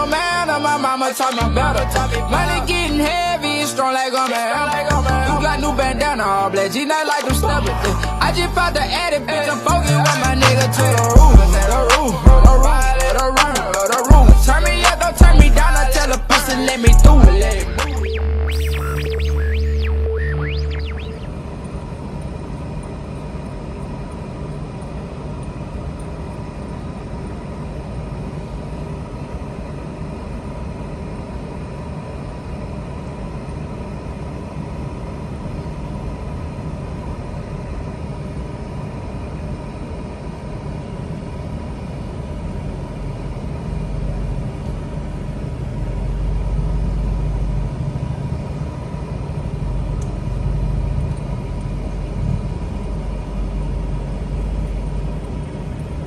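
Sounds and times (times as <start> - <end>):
car engine rumble: 7.3 - 29.5, 39.4 - 56.0
road noise: 41.5 - 56.0.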